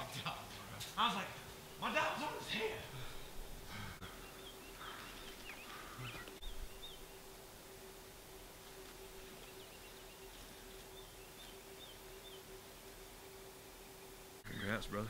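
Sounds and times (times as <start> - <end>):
small bird chirps: 4.1 - 7.2.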